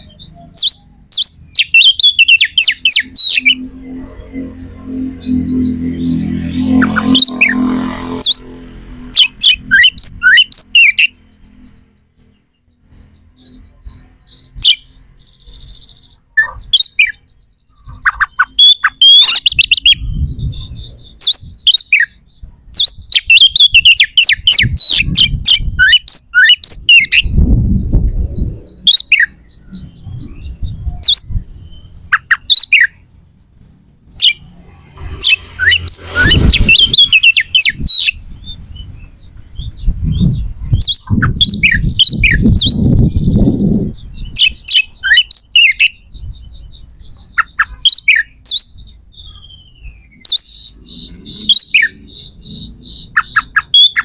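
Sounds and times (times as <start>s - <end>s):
birds chirping and squawking: 0.0s - 54.0s
low rumbling: 2.8s - 13.8s, 27.1s - 32.1s, 32.9s - 44.7s.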